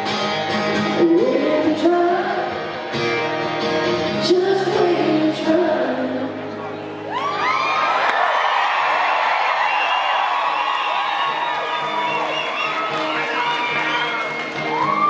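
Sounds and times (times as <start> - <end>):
country band with guitar: 0.0 - 8.1, 9.0 - 15.0
person singing: 0.8 - 2.7, 4.0 - 6.4.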